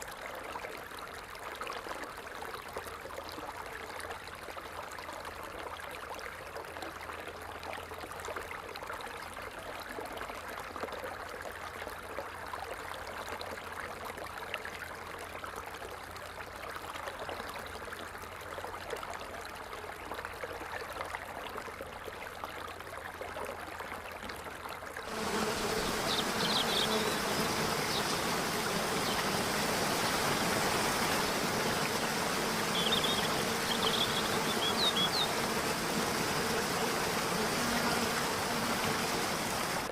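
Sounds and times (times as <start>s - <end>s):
running water: 25.0s - 39.9s
water trickling: 25.0s - 39.9s
insects buzzing: 25.1s - 39.9s.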